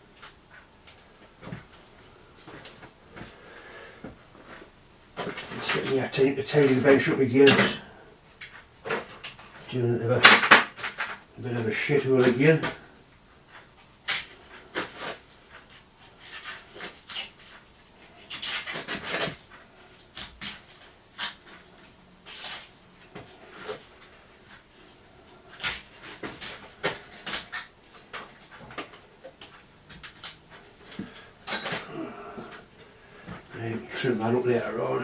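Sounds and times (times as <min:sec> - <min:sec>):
tools clunking on workbench: 0:07.5 - 0:07.9, 0:10.2 - 0:11.2.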